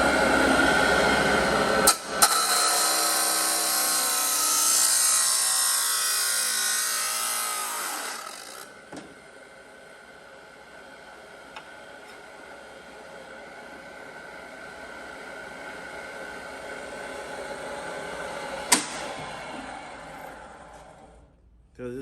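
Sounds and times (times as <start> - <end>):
chop saw grinding steel: 1.9 - 8.7.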